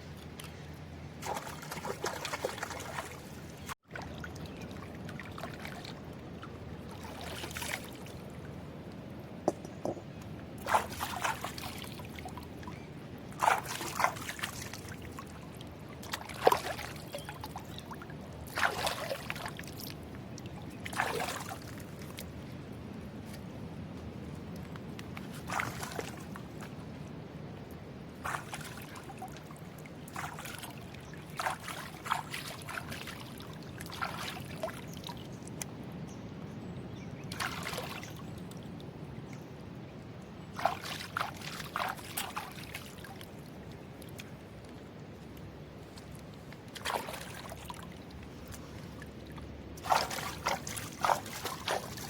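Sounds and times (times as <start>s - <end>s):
water sloshing and splashing: 0.0s - 22.5s, 24.6s - 27.1s, 28.1s - 35.7s, 37.3s - 38.9s, 40.4s - 52.0s.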